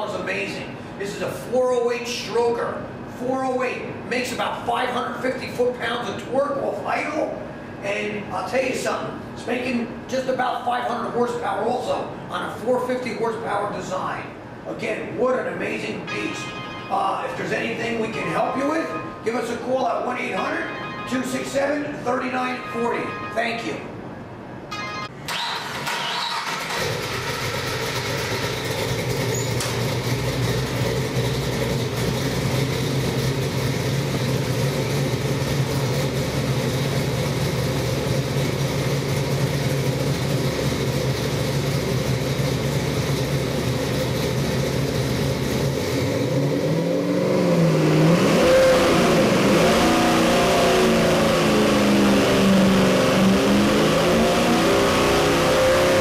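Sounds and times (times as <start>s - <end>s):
engine running and revving: 26.7s - 56.0s.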